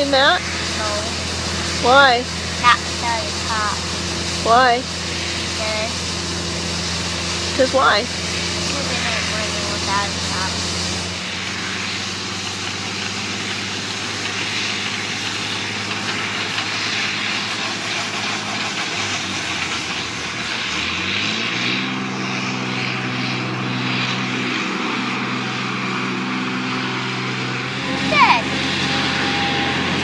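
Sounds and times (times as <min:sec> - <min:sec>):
large vehicle engine droning: 0:00.0 - 0:30.0.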